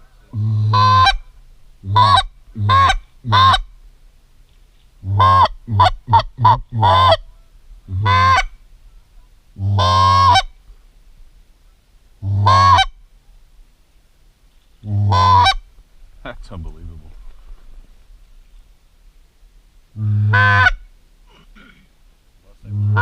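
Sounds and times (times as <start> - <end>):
goose honking: 0.3 - 3.7, 5.0 - 7.3, 7.9 - 8.6, 9.6 - 10.5, 12.2 - 13.0, 14.8 - 15.6, 20.0 - 20.8, 22.7 - 23.0.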